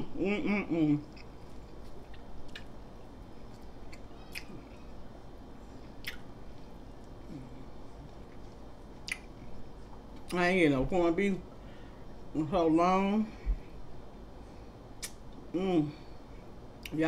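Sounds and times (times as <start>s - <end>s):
person chewing: 0.8s - 2.8s, 3.4s - 4.9s, 5.8s - 6.3s, 6.9s - 10.4s.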